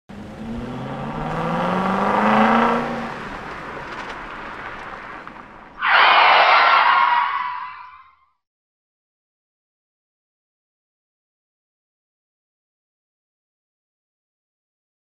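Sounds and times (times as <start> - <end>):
car engine revving: 0.1 - 5.2
loud burst of harsh noise: 5.8 - 8.0.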